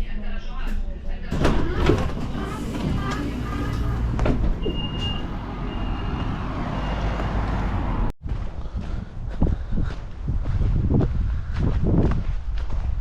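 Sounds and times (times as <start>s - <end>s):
bus engine rumble: 1.3s - 8.2s
road noise: 1.3s - 10.4s.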